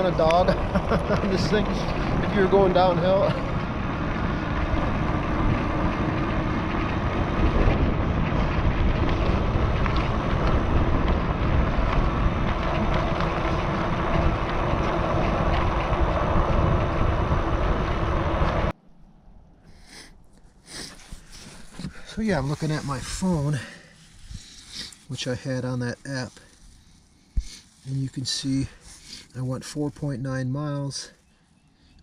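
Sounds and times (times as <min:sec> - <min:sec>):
tyre rumble: 0:00.0 - 0:18.7
wind rushing over microphone: 0:00.0 - 0:18.8.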